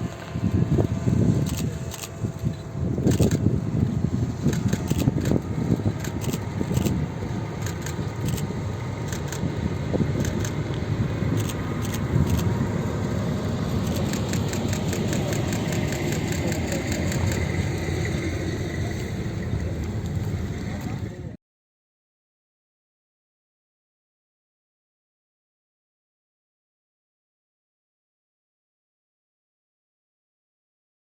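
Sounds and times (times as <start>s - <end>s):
train engine rumble: 0.0s - 21.4s
train wheels clicking on track: 4.4s - 21.1s.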